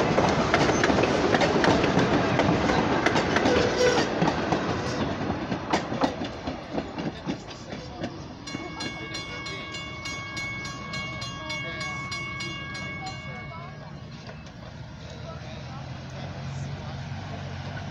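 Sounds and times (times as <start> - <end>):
train wheels clicking over rail joints: 0.0 - 16.2
crossing bell ringing: 8.2 - 14.7.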